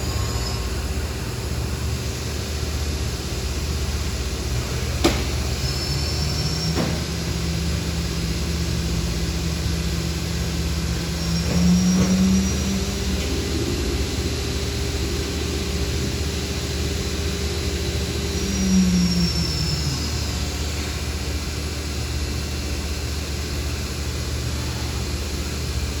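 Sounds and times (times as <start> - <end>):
machine hum with tones: 0.0 - 26.0
machine whine falling in pitch: 5.0 - 22.3.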